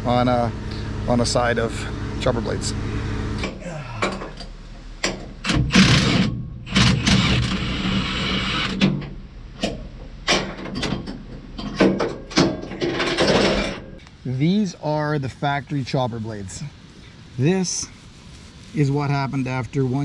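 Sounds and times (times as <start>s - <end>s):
metal rattling: 8.8s - 14.0s.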